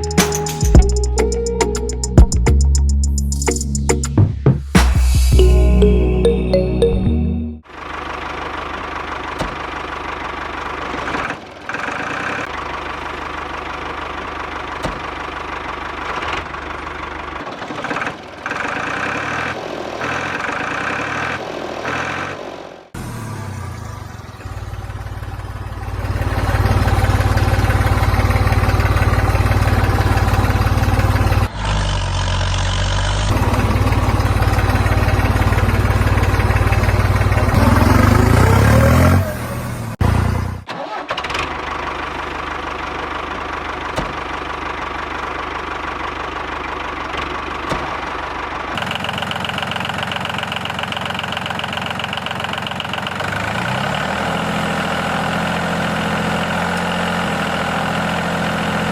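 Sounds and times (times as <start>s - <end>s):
engine humming: 24.0s - 40.6s.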